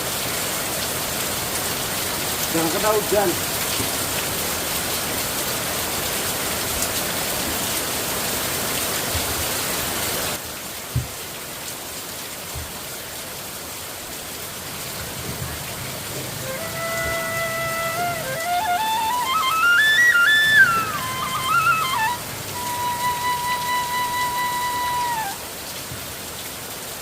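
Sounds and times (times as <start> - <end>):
rain falling: 0.0 - 27.0
flute tune: 16.1 - 25.5.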